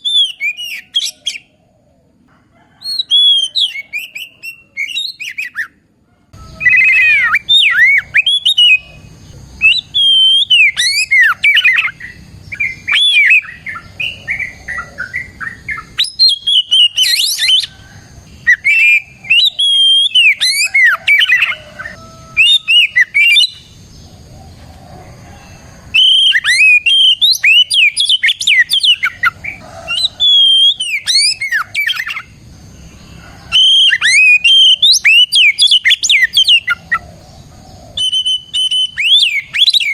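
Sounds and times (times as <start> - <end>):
bird singing whistled phrases: 0.0 - 1.5, 2.9 - 5.7, 6.5 - 9.0, 9.6 - 17.7, 18.4 - 23.7, 26.0 - 32.3, 33.5 - 36.8, 37.9 - 39.9.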